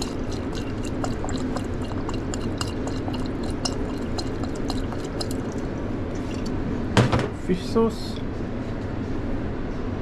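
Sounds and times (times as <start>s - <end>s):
sauce pouring into a bowl: 0.0s - 6.5s
low kitchen hum: 0.0s - 10.0s.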